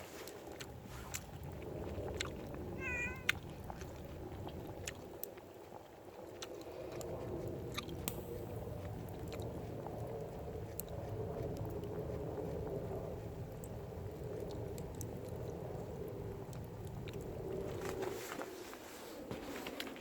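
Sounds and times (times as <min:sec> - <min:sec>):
steady low rumble: 0:00.0 - 0:20.0
cat meowing: 0:02.8 - 0:03.4.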